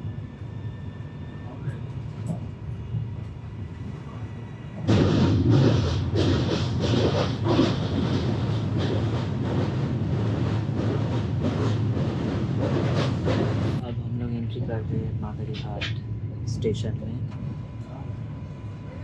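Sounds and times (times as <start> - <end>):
train rumbling at speed: 0.0 - 19.0
train clattering over steel bridge: 4.6 - 16.0.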